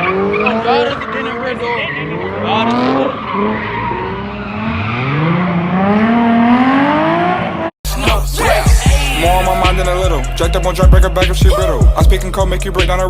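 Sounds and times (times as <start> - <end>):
tires squealing: 0.0 - 7.7, 8.4 - 12.0
car engine revving: 0.0 - 13.0
hip-hop track with heavy beat: 7.8 - 13.0.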